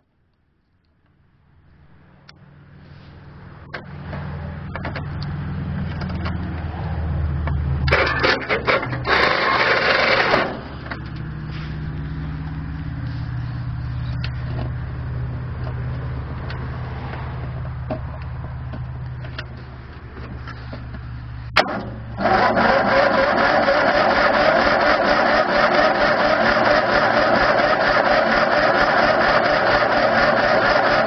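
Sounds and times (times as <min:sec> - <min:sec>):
starter motor cranking engine: 0:07.9 - 0:11.2, 0:21.6 - 0:31.0.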